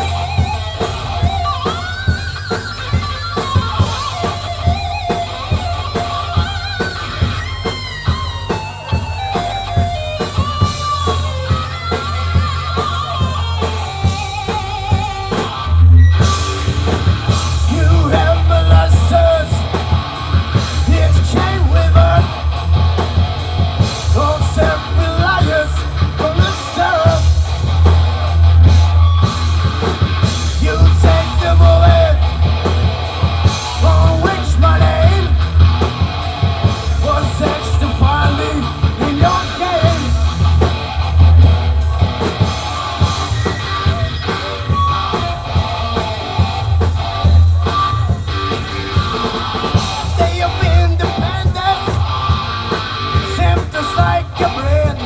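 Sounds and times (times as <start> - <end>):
bass guitar: 0.0 - 55.0
drum kit: 0.0 - 55.0
electric guitar: 0.0 - 55.0
person singing: 17.6 - 19.8, 20.7 - 22.5, 24.0 - 27.3, 30.6 - 32.3, 33.7 - 35.5, 36.8 - 40.3, 49.9 - 52.0, 53.2 - 55.0.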